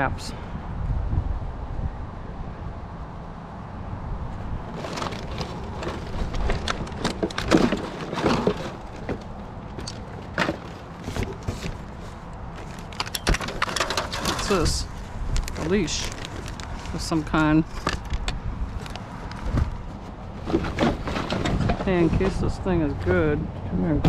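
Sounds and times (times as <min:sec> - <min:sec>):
debris being rummaged through: 0:04.6 - 0:18.1, 0:18.8 - 0:22.3.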